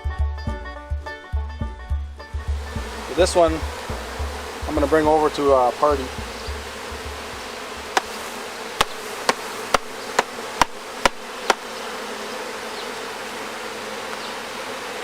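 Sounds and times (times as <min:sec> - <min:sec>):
honeybees humming: 0:00.0 - 0:15.0
sharp taps: 0:06.2 - 0:08.2, 0:08.8 - 0:11.7.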